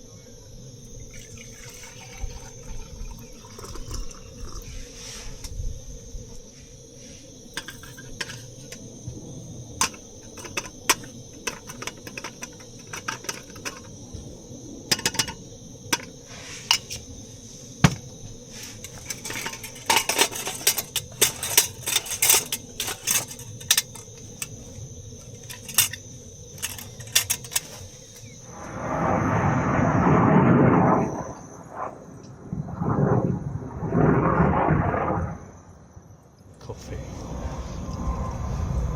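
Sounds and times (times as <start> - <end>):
metal cookware clinking: 18.9 - 24.5, 26.6 - 27.7
loud rushing noise: 36.9 - 38.9.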